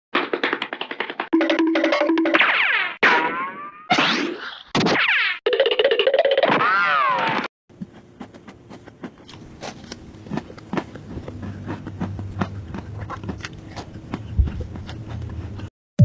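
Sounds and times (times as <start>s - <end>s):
person chewing: 7.7s - 15.7s
low steady hum: 7.8s - 15.7s.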